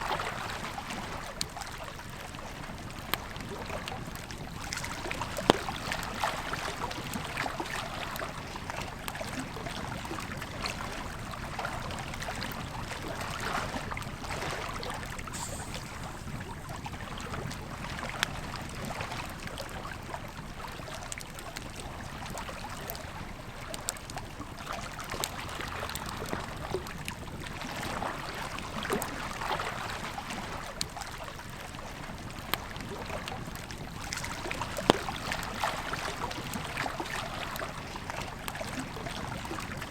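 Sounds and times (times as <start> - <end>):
river flowing: 14.3 - 18.0
campfire crackling and popping: 15.0 - 18.6.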